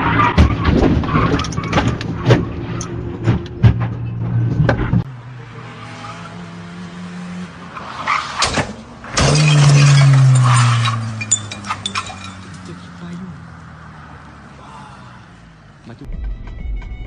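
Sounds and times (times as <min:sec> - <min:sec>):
road traffic: 0:00.0 - 0:16.1
bangs: 0:08.2 - 0:12.8.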